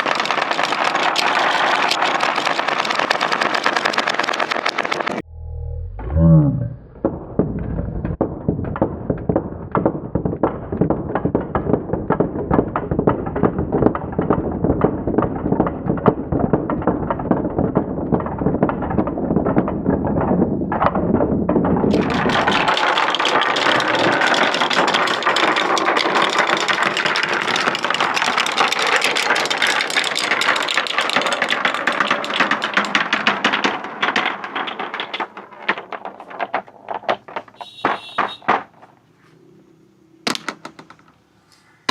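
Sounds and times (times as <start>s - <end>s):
marbles clattering down a track: 0.0s - 5.2s, 8.3s - 38.9s
low rumble: 5.2s - 8.7s.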